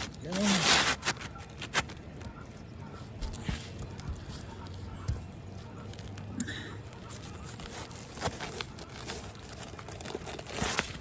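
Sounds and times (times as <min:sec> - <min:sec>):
roof shingle scraping into place: 0:00.0 - 0:02.1.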